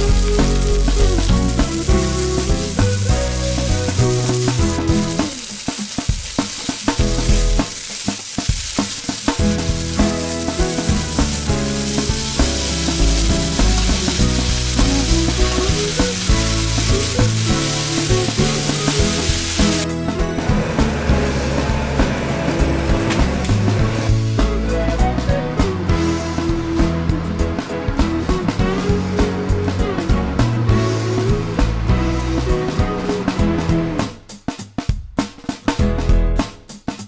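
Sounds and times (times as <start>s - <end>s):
vegetables sizzling in a frying pan: 0.0s - 19.9s
melodic background music: 0.0s - 34.3s.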